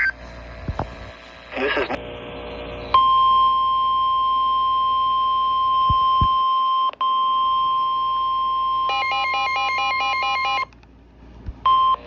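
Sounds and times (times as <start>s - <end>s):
high alarm beep: 3.0s - 10.7s.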